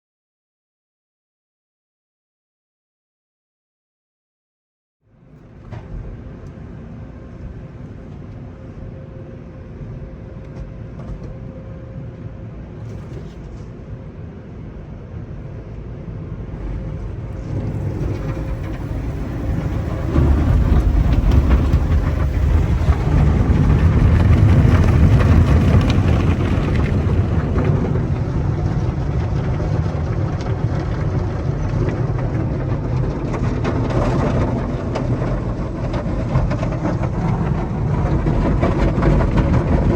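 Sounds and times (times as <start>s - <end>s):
heavy low rumble: 5.1s - 39.9s
car wash motor noise: 5.2s - 39.9s
car wash spraying water: 16.6s - 32.5s.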